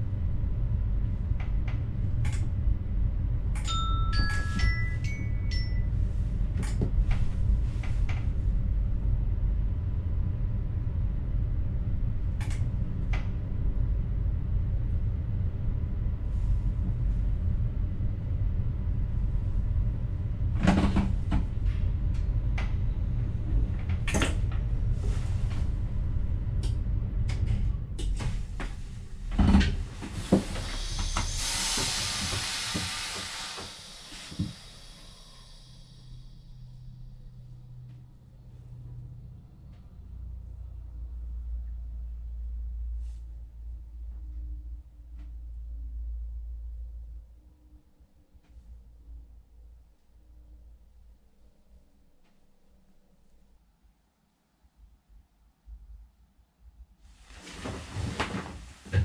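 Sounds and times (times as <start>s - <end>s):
electric train rumble: 0.0s - 53.4s.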